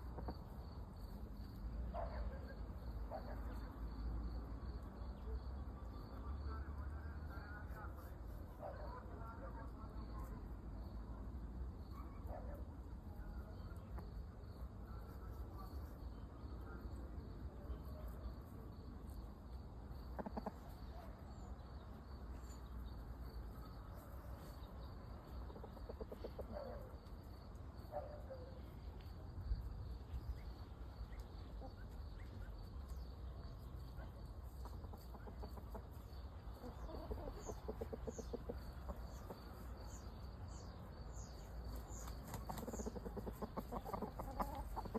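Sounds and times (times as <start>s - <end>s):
chickens clucking: 0.0s - 0.6s, 20.0s - 21.2s, 24.0s - 27.1s, 34.2s - 44.9s.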